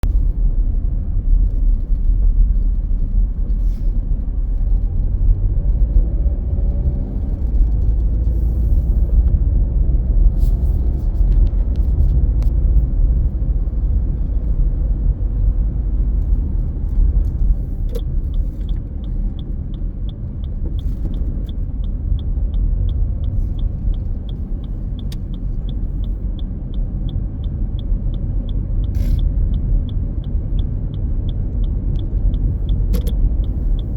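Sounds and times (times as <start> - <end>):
road and wind noise in car: 0.0 - 33.9
regular ticking: 16.9 - 33.9.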